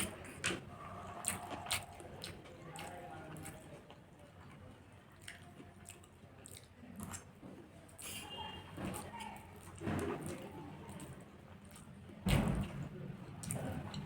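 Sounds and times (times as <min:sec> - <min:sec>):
person chewing food: 0:00.0 - 0:12.1
wet mouth clicks and smacks: 0:05.2 - 0:07.3.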